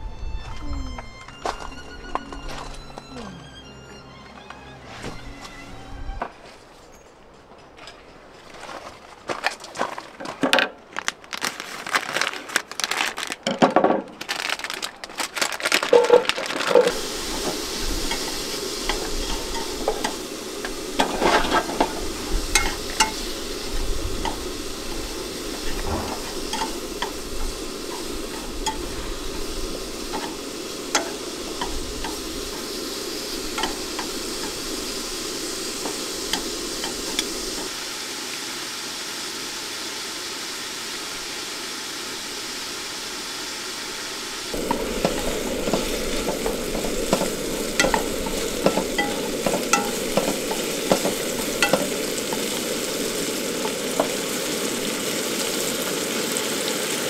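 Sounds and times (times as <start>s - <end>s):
food sizzling in a pan: 15.9s - 57.0s
utensil clatter and stirring: 16.2s - 23.4s, 25.5s - 29.0s, 29.9s - 37.7s, 44.6s - 54.6s.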